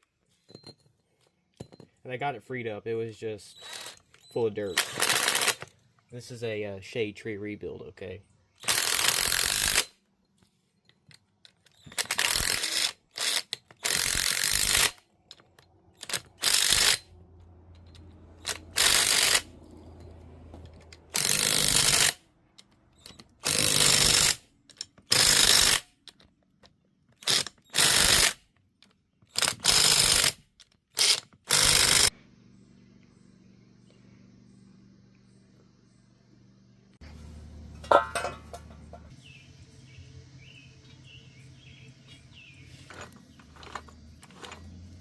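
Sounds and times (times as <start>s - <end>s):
ratchet wrench clicking: 8.6s - 9.9s, 11.9s - 15.0s, 16.0s - 17.1s, 17.7s - 26.2s, 27.2s - 28.4s, 29.3s - 32.1s.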